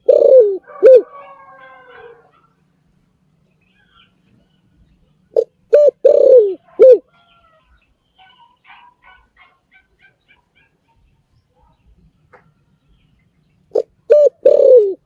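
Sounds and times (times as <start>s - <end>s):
dove cooing: 0.0s - 2.5s, 5.2s - 7.6s, 13.7s - 15.0s
small birds chirping: 1.6s - 5.7s, 6.4s - 14.8s.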